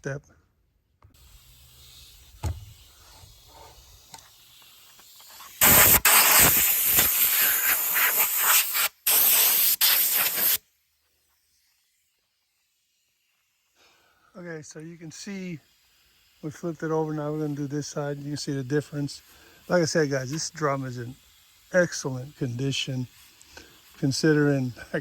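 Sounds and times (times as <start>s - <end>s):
sandpaper sanding wood: 1.2s - 10.6s, 16.4s - 25.0s.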